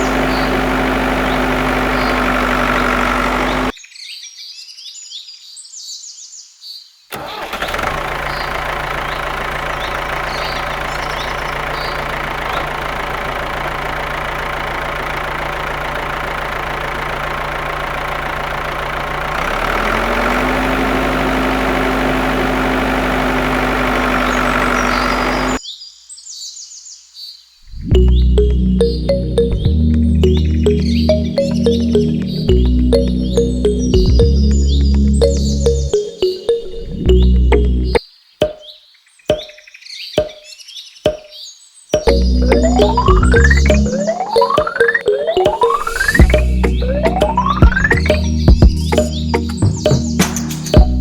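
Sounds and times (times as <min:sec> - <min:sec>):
small motor running: 0:00.0 - 0:03.7
birds chirping: 0:00.0 - 0:04.2, 0:08.2 - 0:19.2, 0:20.0 - 0:51.0.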